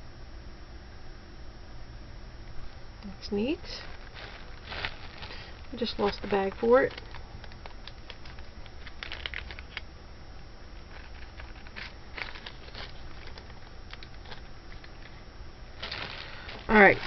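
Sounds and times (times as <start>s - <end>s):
faint steady hum: 0.0s - 17.0s
plastic bags crinkling: 3.4s - 9.9s, 10.7s - 17.0s.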